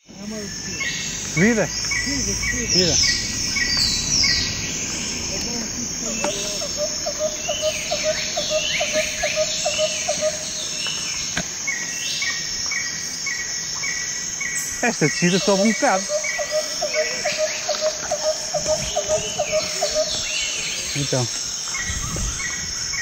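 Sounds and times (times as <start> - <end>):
crickets chirping: 0.0 - 23.0
rapid low insect pulses: 0.0 - 23.0
falling chirp sweeps: 0.5 - 11.2.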